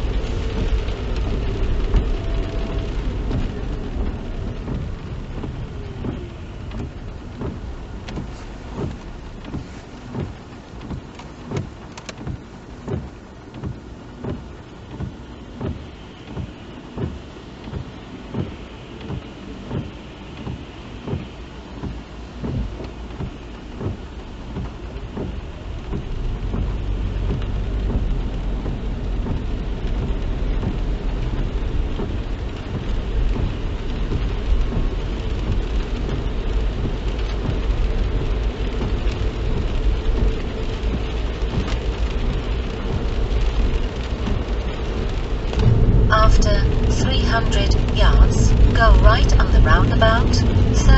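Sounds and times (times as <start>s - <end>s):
car engine and tyre noise: 0.0s - 50.9s
low road rumble: 0.0s - 50.9s
rain on car: 0.0s - 50.9s
soft regular beat: 3.2s - 30.8s.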